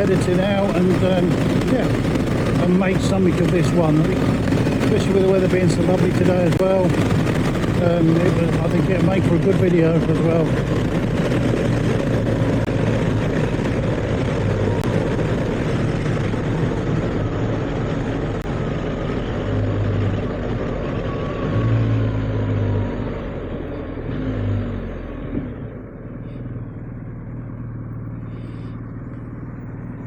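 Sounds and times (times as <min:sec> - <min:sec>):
wind noise: 0:00.0 - 0:21.8
motorcycle engine running: 0:00.0 - 0:24.1, 0:25.1 - 0:30.0
road noise: 0:00.0 - 0:30.0.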